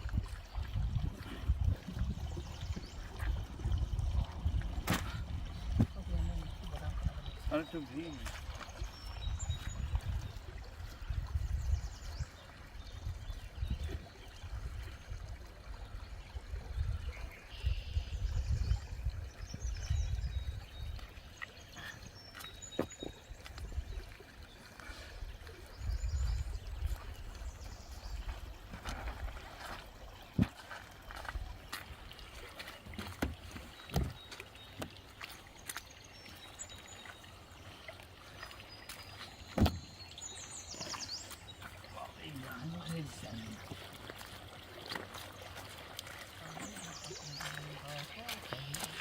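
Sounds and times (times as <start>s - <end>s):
wind rumble on microphone: 0.0s - 7.5s, 8.8s - 21.2s, 25.4s - 29.5s
water trickling and pouring: 0.0s - 49.0s.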